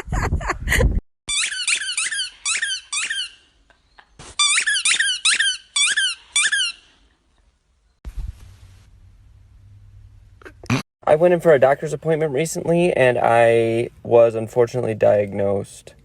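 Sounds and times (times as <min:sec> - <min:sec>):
short high squeaks: 0:01.3 - 0:03.5, 0:04.2 - 0:07.0.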